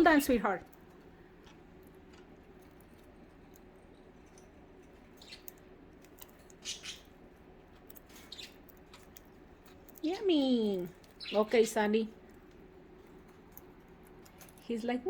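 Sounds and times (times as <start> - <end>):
low steady hum: 0.0 - 15.0
budgies chirping: 5.0 - 7.2, 8.1 - 9.0, 10.1 - 12.1.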